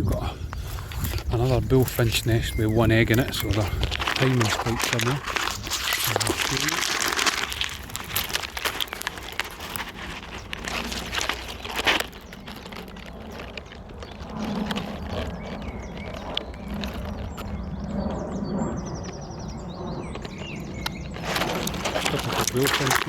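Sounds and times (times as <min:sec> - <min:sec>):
small birds chirping: 0:00.0 - 0:23.0
twigs and leaves rustling: 0:00.0 - 0:23.0
twig snapping: 0:03.1 - 0:17.5.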